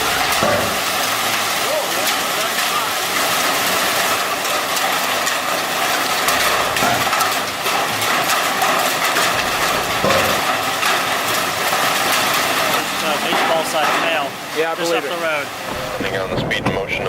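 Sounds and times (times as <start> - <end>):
hail pelting a vehicle: 0.0 - 17.0.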